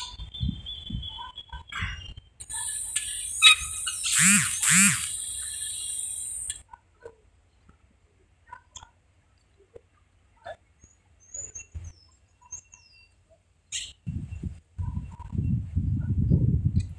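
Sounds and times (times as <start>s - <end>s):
faint bird chirps: 0.0s - 6.6s, 9.5s - 15.6s
high falling bird calls: 0.0s - 6.6s.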